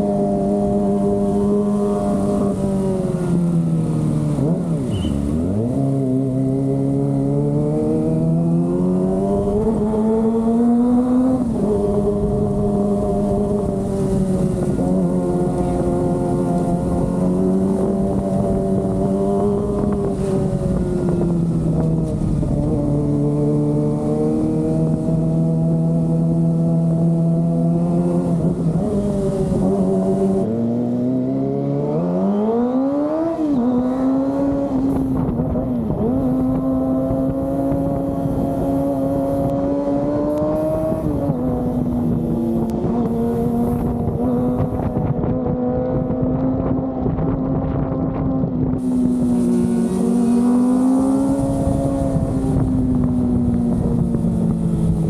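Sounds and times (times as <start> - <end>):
motorcycle engine running: 34.8 - 55.0.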